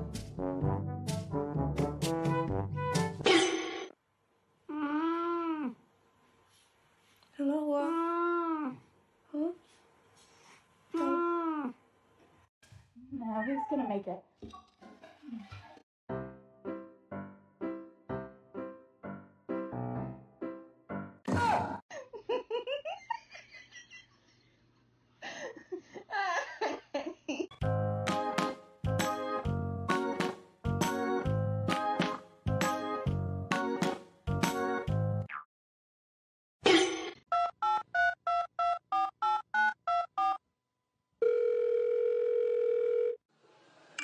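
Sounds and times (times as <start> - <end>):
piano music: 16.1 - 21.2, 27.6 - 35.3
steady telephone tone: 41.2 - 43.2.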